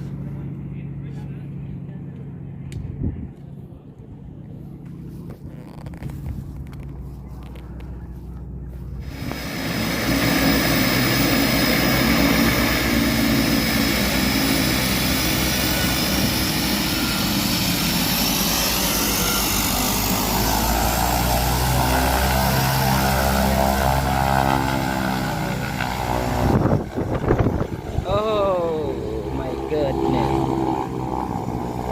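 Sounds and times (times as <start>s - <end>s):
propeller plane engine drone: 0.0s - 31.9s.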